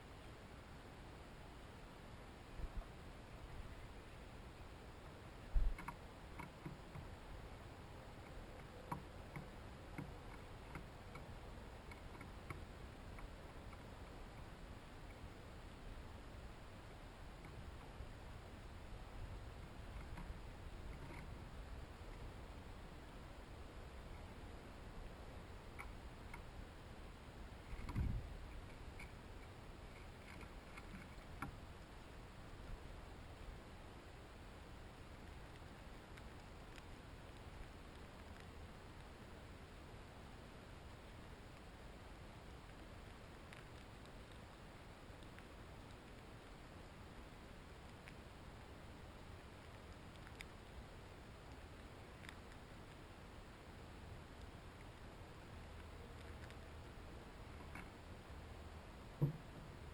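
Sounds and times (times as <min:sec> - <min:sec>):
birds pecking at seed feeder: 0:02.2 - 0:59.9
low thump: 0:59.2 - 0:59.7.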